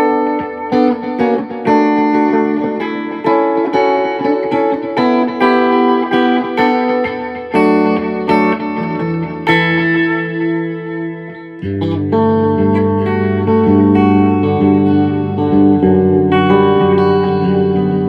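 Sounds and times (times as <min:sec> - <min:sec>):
electric guitar with delay: 0:00.0 - 0:18.0.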